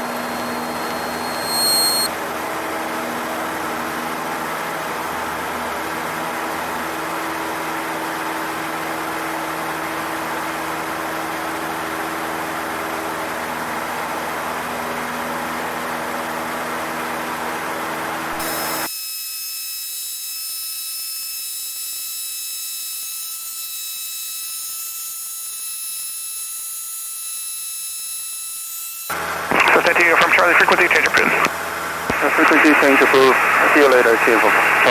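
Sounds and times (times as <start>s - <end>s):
faint high whines: 0.0s - 2.4s, 29.5s - 34.9s
light aircraft engine droning: 29.2s - 34.9s.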